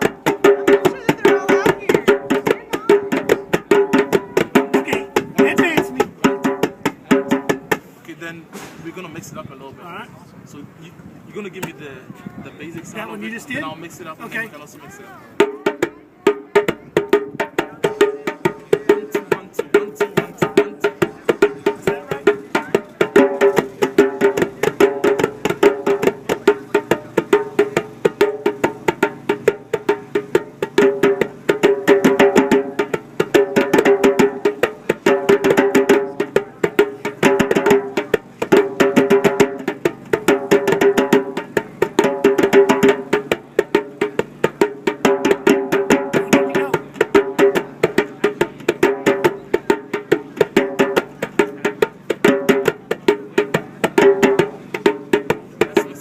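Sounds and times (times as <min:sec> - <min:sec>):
hand percussion rhythm: 0:00.0 - 0:08.2, 0:11.4 - 0:56.0.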